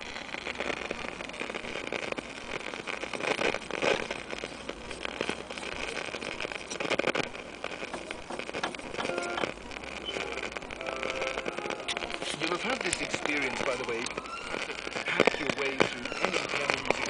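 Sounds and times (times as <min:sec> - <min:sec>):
radio static hiss: 0:00.0 - 0:17.0
static crackles: 0:00.0 - 0:17.0.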